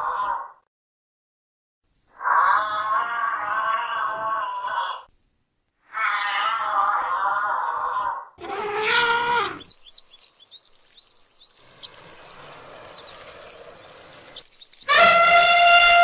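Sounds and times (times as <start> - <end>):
loud drawn-out animal call: 0.0 - 0.6, 2.1 - 5.1, 5.8 - 9.8, 11.9 - 16.0
birds chirping: 8.4 - 16.0.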